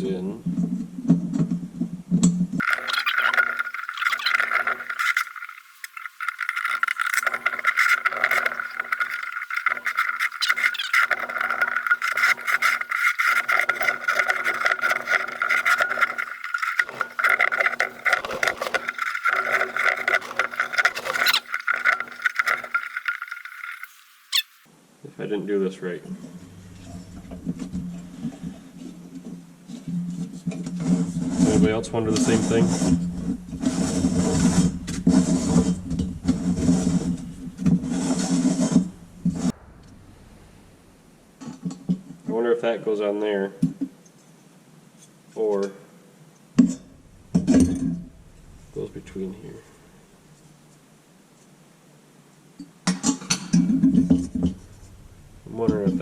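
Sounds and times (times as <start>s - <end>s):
metal parts screwed together: 2.6s - 24.5s.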